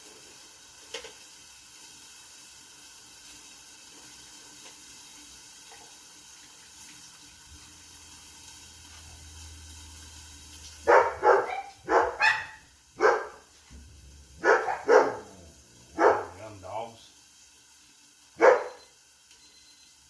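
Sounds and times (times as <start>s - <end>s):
faint steady hiss: 0.0s - 20.0s
dog barking: 10.8s - 13.5s, 14.3s - 16.6s, 18.4s - 18.9s.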